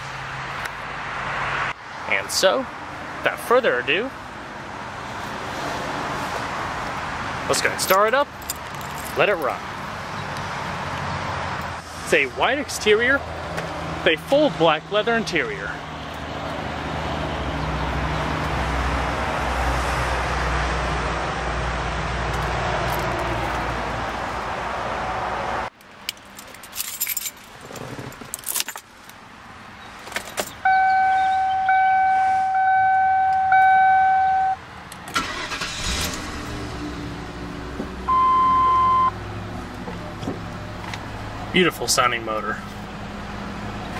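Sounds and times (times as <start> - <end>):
keys jingling: 7.7 - 9.6, 26.0 - 29.2, 30.0 - 30.6
car warning chime: 30.6 - 34.6, 38.1 - 39.2
short beep: 30.7 - 34.6, 38.1 - 39.2
engine cranking and starting: 35.0 - 36.8.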